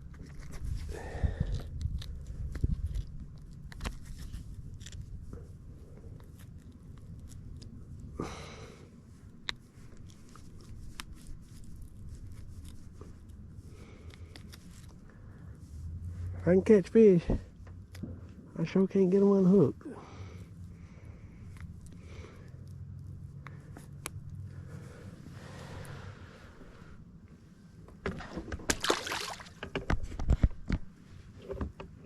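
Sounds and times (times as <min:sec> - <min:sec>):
small clicks and rustles: 0:00.0 - 0:08.1, 0:09.2 - 0:15.5, 0:29.5 - 0:32.0
steady low rumble: 0:00.0 - 0:28.0.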